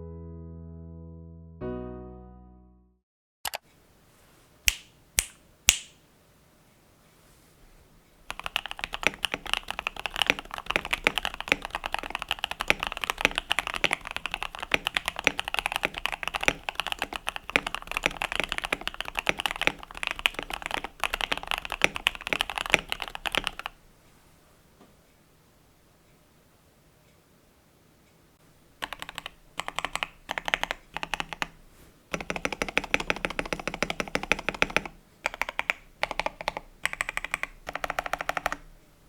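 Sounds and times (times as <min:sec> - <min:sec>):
typing on mechanical keyboard: 0:08.3 - 0:23.8, 0:28.8 - 0:38.7.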